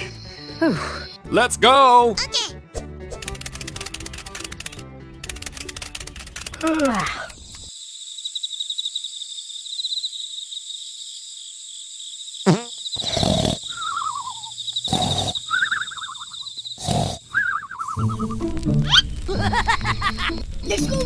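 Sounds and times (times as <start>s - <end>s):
falling calls: 12.6s - 20.2s.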